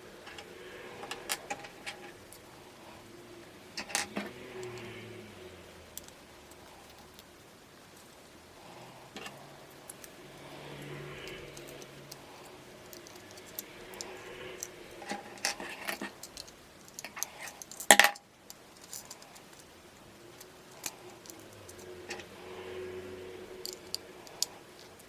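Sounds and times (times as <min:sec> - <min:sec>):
plastic bricks clicking and rattling: 0:10.8 - 0:19.7, 0:23.6 - 0:25.0
clatter of plastic pieces: 0:12.8 - 0:19.7.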